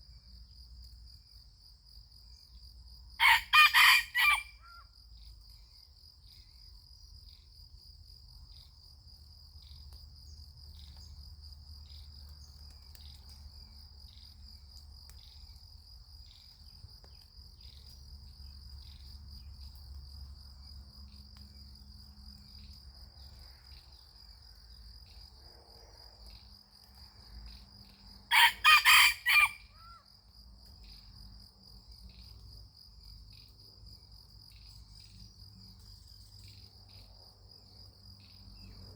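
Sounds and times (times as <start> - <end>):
high insect trill: 0.0 - 38.9
rooster crowing: 3.2 - 4.8, 28.3 - 30.0.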